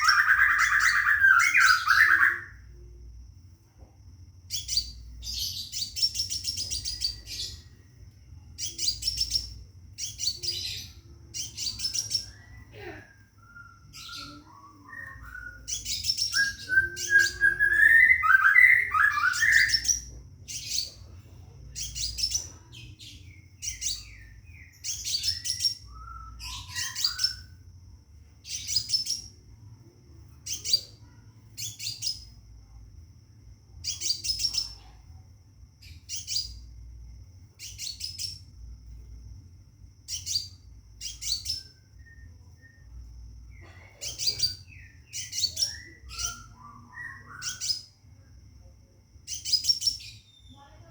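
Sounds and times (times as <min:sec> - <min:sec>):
rising whistled bird notes: 0:11.9 - 0:20.0, 0:23.7 - 0:27.6, 0:44.3 - 0:47.9.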